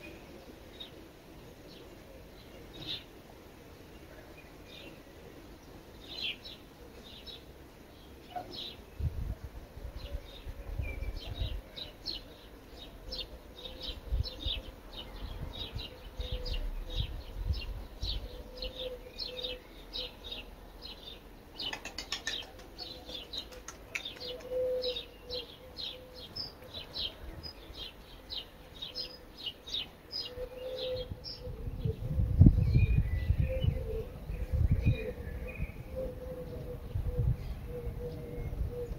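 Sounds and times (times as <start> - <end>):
small bird chirping: 21.5 - 26.9.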